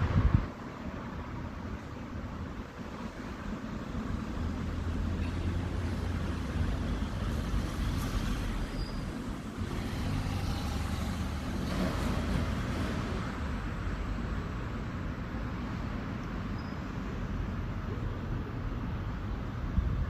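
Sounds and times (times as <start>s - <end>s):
heavy vehicle engine rumbling: 0.0s - 20.0s
road traffic: 0.0s - 20.0s.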